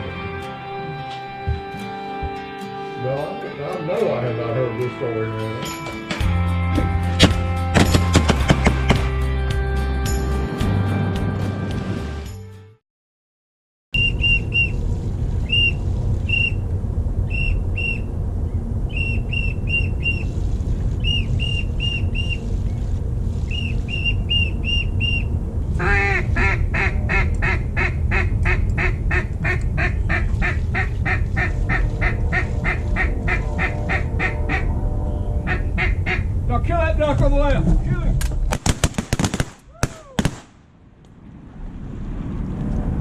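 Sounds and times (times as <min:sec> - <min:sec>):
duck whistle notes: 0:14.0 - 0:14.8, 0:15.5 - 0:16.6, 0:17.3 - 0:18.1, 0:21.0 - 0:22.4, 0:23.5 - 0:36.3
steady low rumble: 0:14.0 - 0:43.0
rapid duck quacks: 0:25.8 - 0:34.7.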